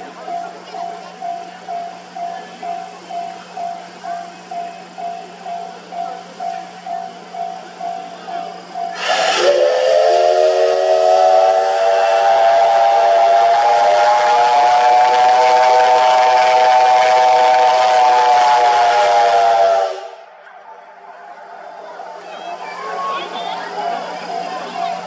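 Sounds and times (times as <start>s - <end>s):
steam hissing: 8.0s - 20.2s
steam locomotive whistle: 8.8s - 20.4s.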